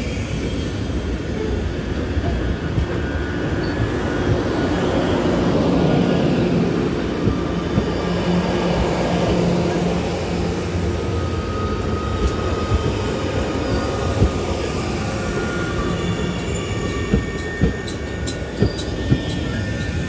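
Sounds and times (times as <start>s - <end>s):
train wheels rumbling on rail: 0.0s - 20.0s
faint thin squeal: 10.9s - 20.0s.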